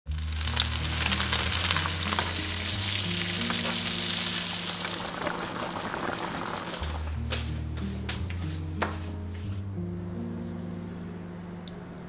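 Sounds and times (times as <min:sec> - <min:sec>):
fish sizzling in a pan: 0:00.1 - 0:07.0.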